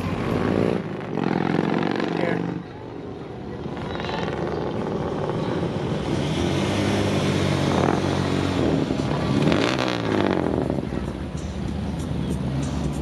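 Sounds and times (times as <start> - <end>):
vehicle passing close: 3.6 - 11.0.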